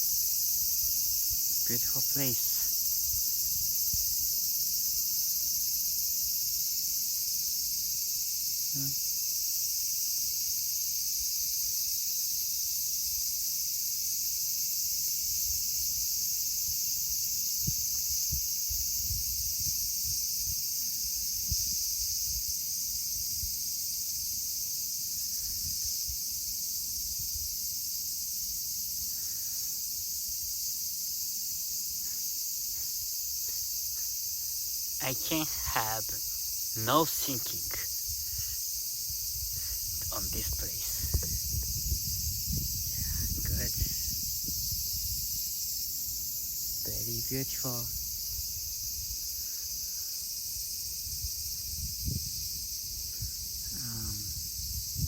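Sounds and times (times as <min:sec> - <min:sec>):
insects shrilling: 0:00.0 - 0:12.8, 0:14.1 - 0:55.0
wind rumbling on microphone: 0:17.6 - 0:23.6, 0:25.4 - 0:26.2, 0:37.8 - 0:45.7, 0:50.6 - 0:55.0.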